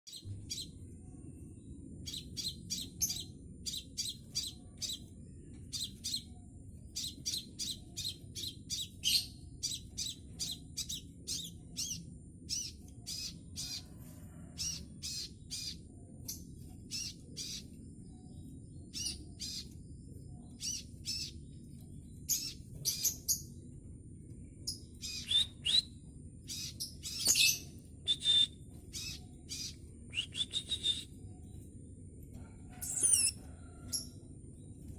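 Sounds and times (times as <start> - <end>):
low hum: 0.1 - 34.9
young bird chirping: 5.7 - 15.8, 20.6 - 21.4, 24.7 - 25.9, 26.5 - 31.1, 32.8 - 33.5.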